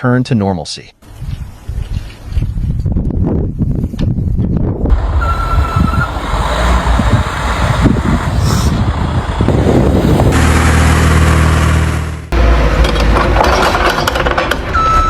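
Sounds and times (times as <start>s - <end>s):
steady engine hum: 4.8s - 13.9s
traffic noise: 4.9s - 15.0s.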